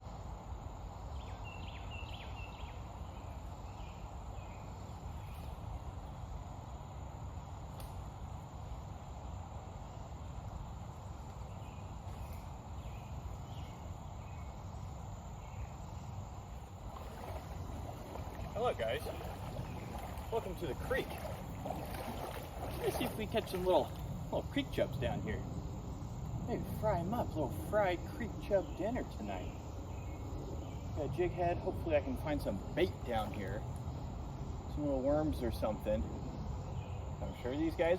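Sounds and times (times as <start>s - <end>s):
creek rushing: 16.2s - 28.6s.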